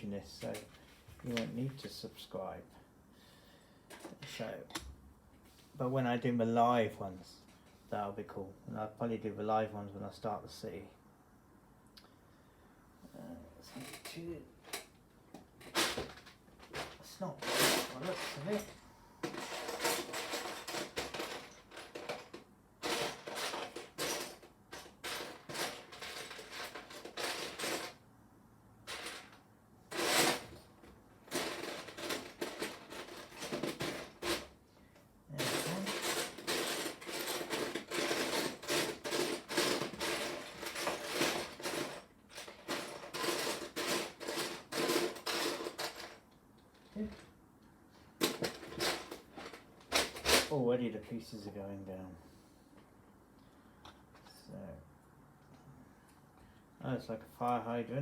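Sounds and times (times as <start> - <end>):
plastic toy bricks clattering: 15.7 - 28.0, 31.3 - 34.5, 35.4 - 47.2.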